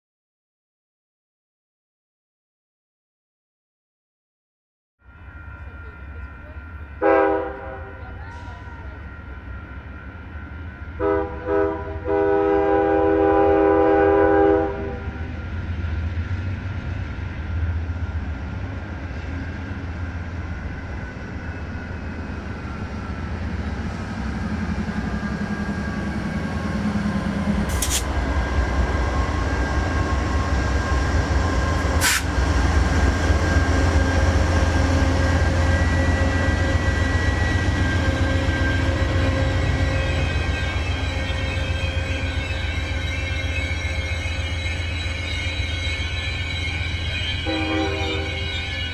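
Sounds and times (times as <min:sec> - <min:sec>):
train rumbling: 0:05.0 - 0:48.9
locomotive air horn blasts: 0:07.0 - 0:08.5, 0:11.0 - 0:15.3, 0:47.0 - 0:48.7.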